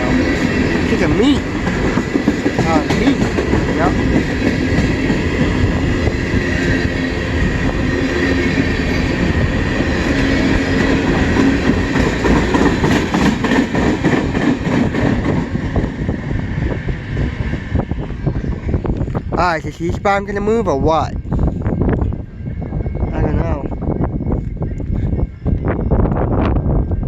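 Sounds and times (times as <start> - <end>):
train wheels clattering over rail joints: 0.1 - 6.7, 10.0 - 16.0.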